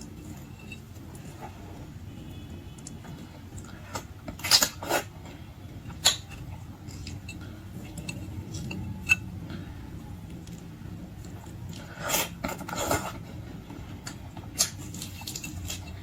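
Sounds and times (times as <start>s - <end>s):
tableware clicking and clattering: 0.0s - 1.5s, 3.6s - 9.7s, 14.1s - 16.0s
low steady background noise: 0.0s - 16.0s.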